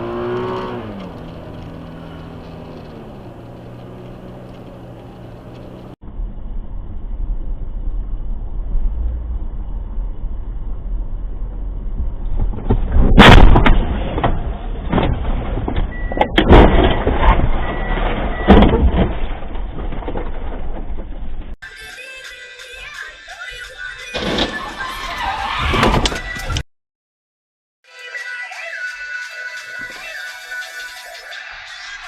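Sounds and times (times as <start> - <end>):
car interior road rumble: 0.0 - 13.2
vehicle collision crash: 12.4 - 21.5, 24.1 - 24.9
sharp bangs: 13.0 - 14.3.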